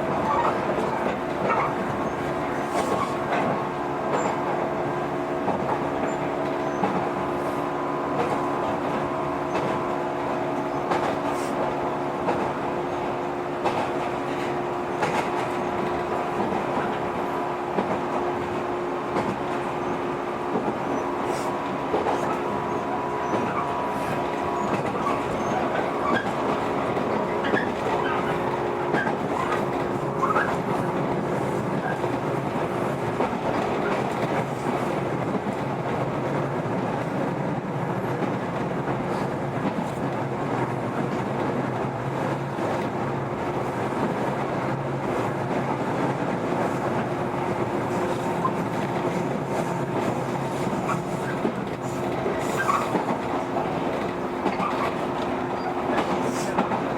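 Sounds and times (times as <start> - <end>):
train drivetrain hum: 0.0 - 56.9
train wheels rumbling on rail: 0.0 - 56.9.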